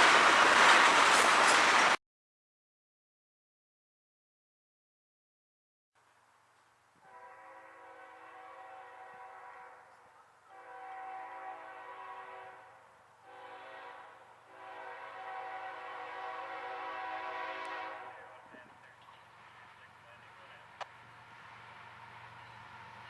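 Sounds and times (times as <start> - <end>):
locomotive air horn blasts: 7.0 - 18.4.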